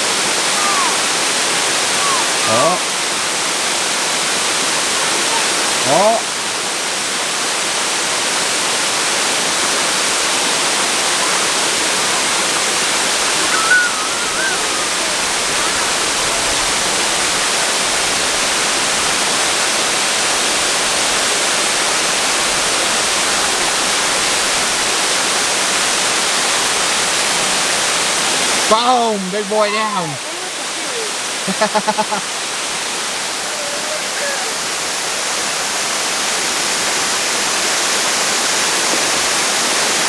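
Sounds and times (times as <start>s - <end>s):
waterfall roaring: 0.0s - 40.0s
wavering high call: 13.2s - 16.1s.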